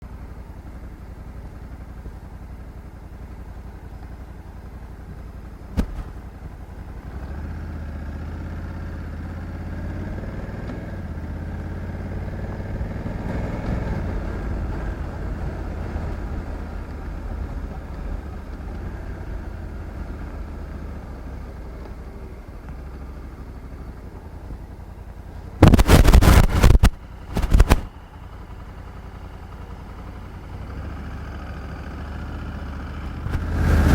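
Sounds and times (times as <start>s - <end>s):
motorcycle engine running: 0.0s - 33.9s
loud rushing noises: 5.8s - 6.2s, 25.6s - 27.9s, 33.3s - 33.9s
sharp click: 5.8s - 6.2s, 25.6s - 27.9s.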